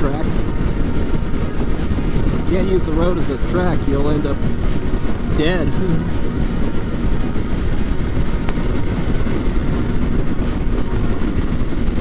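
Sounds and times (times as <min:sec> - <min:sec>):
motorcycle engine cruising: 0:00.0 - 0:12.0
wind rush on microphone: 0:00.0 - 0:12.0.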